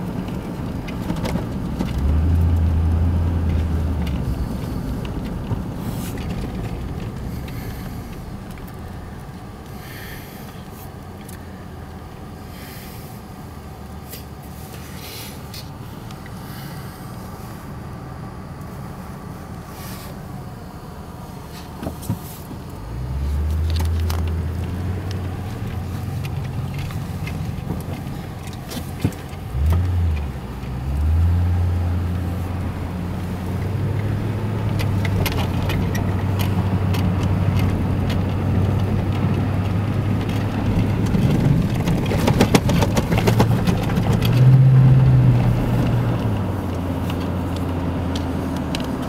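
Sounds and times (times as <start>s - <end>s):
car engine and tyres rumble: 0.0s - 49.0s
clicks and rattles: 23.4s - 30.8s, 32.6s - 49.0s.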